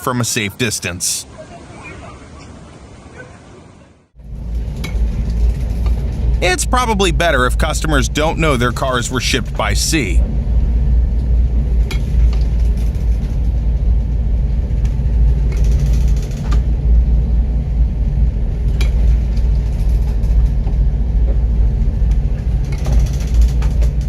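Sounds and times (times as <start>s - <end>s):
loud low rumble: 4.2s - 11.9s.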